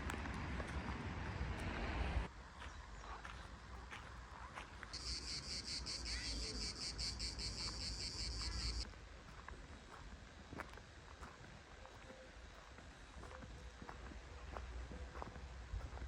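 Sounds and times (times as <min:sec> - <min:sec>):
cicada chirring: 0:05.0 - 0:08.8.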